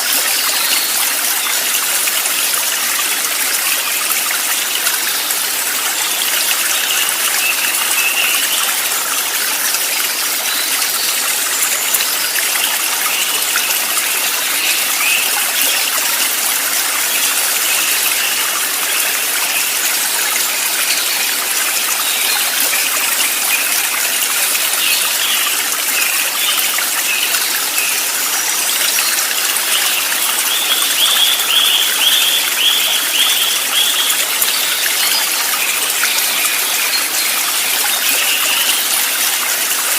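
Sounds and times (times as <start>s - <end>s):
stream flowing: 0.0s - 39.9s
small birds chirping: 20.8s - 39.1s.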